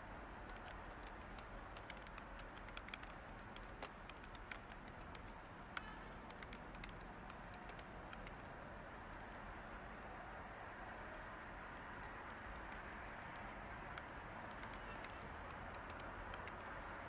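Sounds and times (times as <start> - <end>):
steady white noise hiss: 0.0 - 17.0
keyboard keystrokes clicking: 0.4 - 8.5, 12.0 - 16.8.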